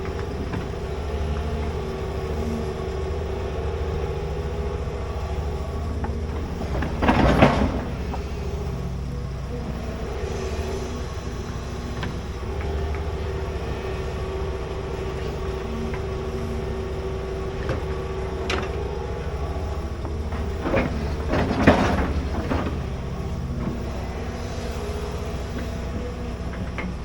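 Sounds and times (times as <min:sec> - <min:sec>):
excavator diesel engine running: 0:00.0 - 0:27.0
metal clanking and scraping: 0:06.0 - 0:08.9, 0:17.6 - 0:24.7.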